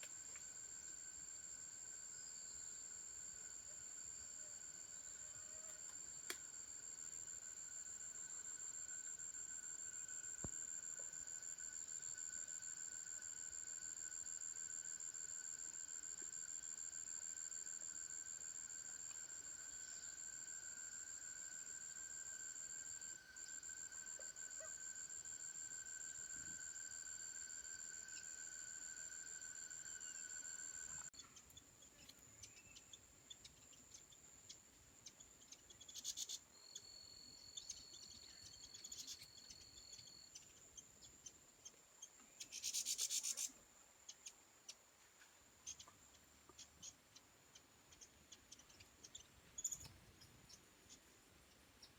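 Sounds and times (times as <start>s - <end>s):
faint insect chirps: 0.0s - 51.9s
high-pitched insect drone: 0.2s - 31.3s, 35.1s - 40.4s.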